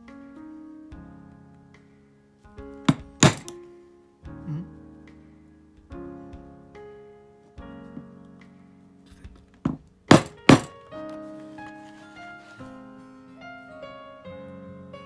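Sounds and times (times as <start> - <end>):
mallet knocks on metal punch: 2.9 - 3.5, 9.7 - 10.7.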